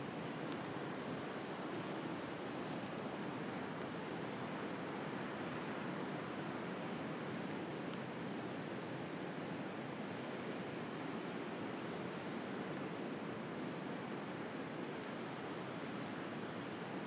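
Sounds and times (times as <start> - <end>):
bonfire crackles: 1.0 - 16.1
sea surf rushing: 1.1 - 3.7.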